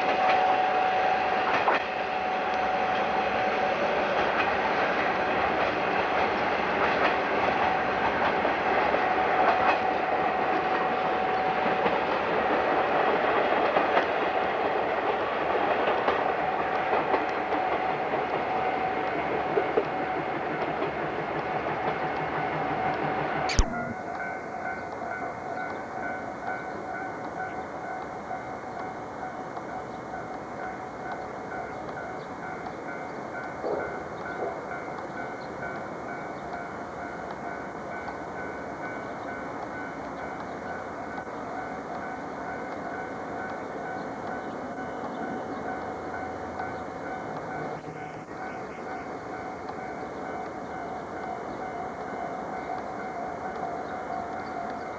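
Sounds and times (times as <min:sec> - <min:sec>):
train hum: 0:00.0 - 0:54.9
pulsing high tone: 0:23.5 - 0:24.0
sharp click: 0:23.5 - 0:24.0
faint high whine: 0:23.5 - 0:24.1.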